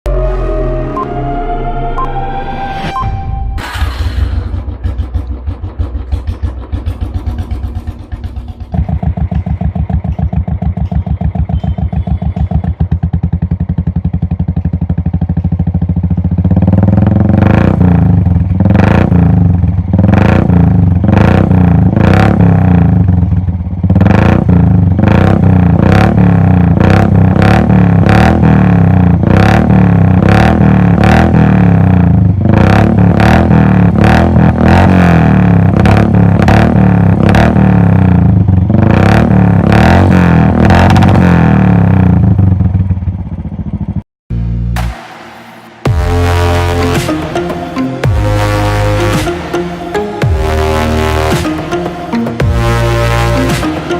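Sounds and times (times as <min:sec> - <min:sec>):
motorcycle engine thumping: 0:03.6 - 0:26.0.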